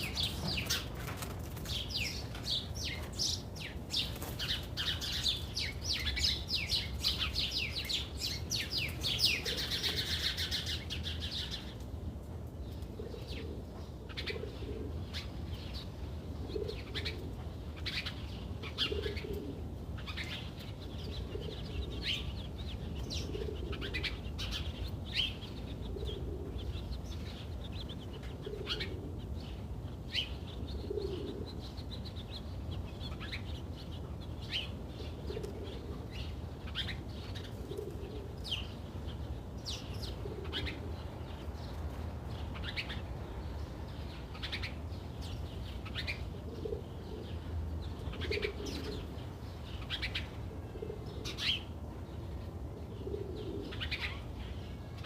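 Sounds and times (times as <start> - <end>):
birds chirping: 0.0 - 11.8, 16.6 - 55.0
soft cooing call: 30.8 - 31.6, 48.1 - 49.2, 52.9 - 54.2.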